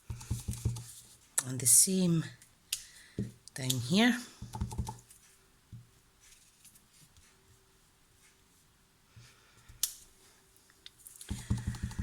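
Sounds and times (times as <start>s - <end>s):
stamp and ink pad clicks and taps: 11.3s - 12.0s.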